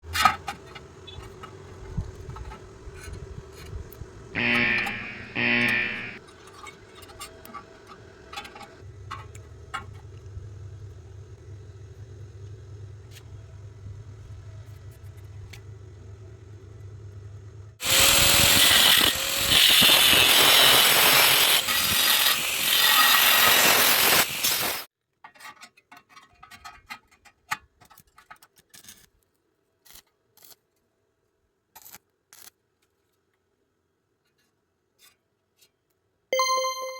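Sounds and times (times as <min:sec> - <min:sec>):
low hum: 0:04.4 - 0:06.2
welding arc crackling hiss: 0:04.4 - 0:06.2, 0:17.8 - 0:24.9.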